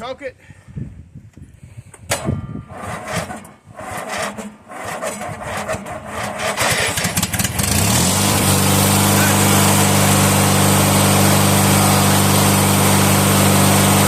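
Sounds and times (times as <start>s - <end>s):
mower engine running unevenly: 6.1s - 14.0s.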